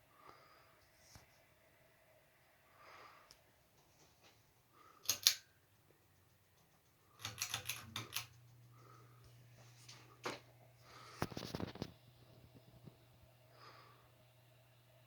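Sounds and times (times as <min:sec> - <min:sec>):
ceiling fan clicks: 0:04.9 - 0:10.6.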